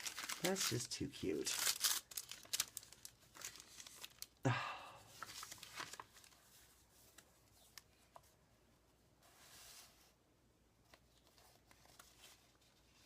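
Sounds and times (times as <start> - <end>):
paper rustling and crinkling: 0.0 - 4.4, 5.1 - 8.2, 10.9 - 13.0.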